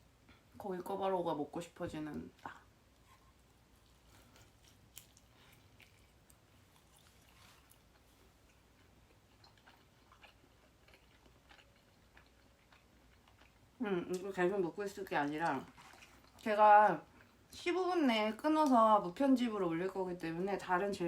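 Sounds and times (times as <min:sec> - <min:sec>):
faint chewing: 0:02.1 - 0:17.7.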